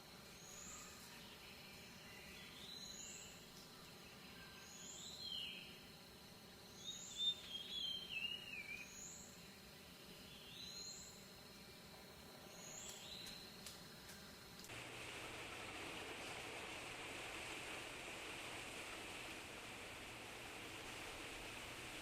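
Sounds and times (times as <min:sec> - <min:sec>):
faint high bird chirp: 0:00.3 - 0:05.9, 0:06.6 - 0:09.6, 0:10.2 - 0:11.6, 0:12.4 - 0:14.3.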